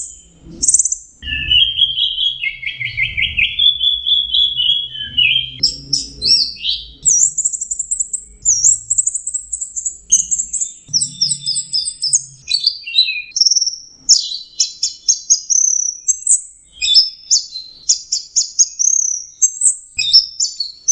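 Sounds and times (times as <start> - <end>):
thrush singing: 1.2 - 13.3.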